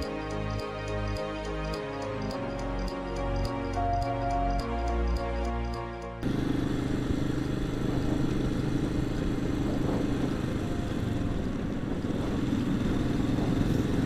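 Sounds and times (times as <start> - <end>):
motorcycle engine running: 6.2 - 14.0
wind and road noise: 6.2 - 14.0.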